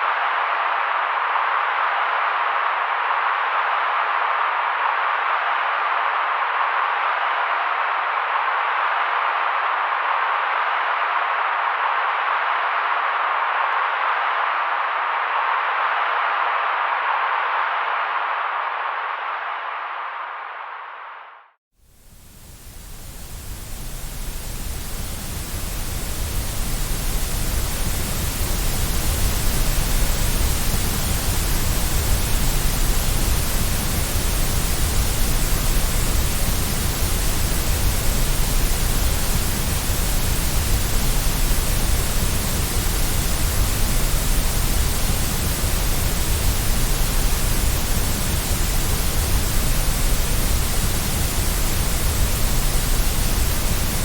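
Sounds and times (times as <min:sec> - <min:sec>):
white noise hiss: 0:21.8 - 0:54.0.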